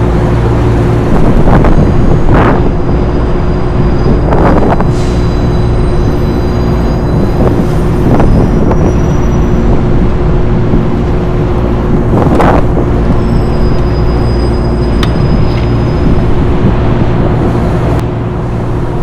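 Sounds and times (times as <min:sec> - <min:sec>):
hvac machinery drone: 0:00.0 - 0:19.0.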